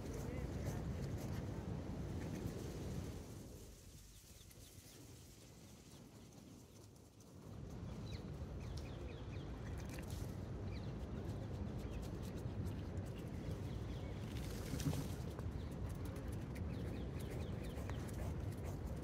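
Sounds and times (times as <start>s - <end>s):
small birds chirping: 7.8s - 19.0s.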